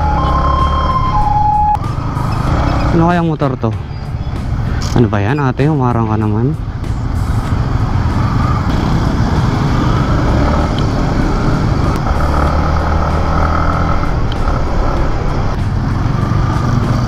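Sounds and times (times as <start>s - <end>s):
motorcycle engine running: 0.0s - 4.8s, 5.4s - 17.0s
road noise: 0.0s - 17.0s.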